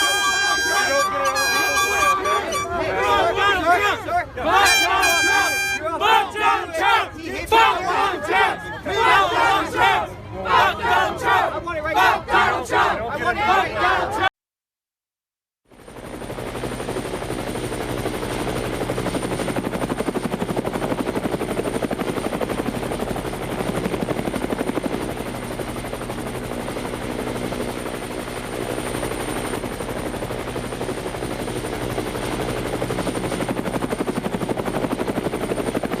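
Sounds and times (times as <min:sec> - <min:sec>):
helicopter rotor beating: 0:15.7 - 0:36.0.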